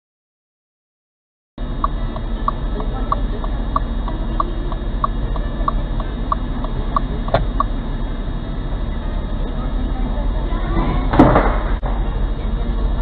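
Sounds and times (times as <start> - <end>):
engine and road drone: 1.6 - 13.0
turn-signal indicator ticking: 1.8 - 7.8.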